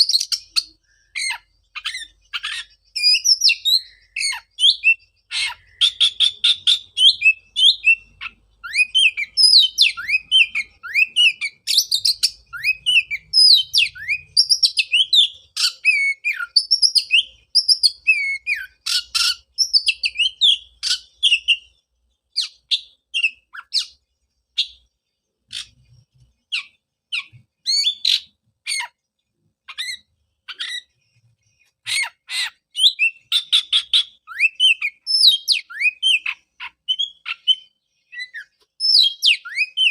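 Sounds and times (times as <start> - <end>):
bird song with whistles and chatter: 0.0 - 29.0, 29.6 - 39.9.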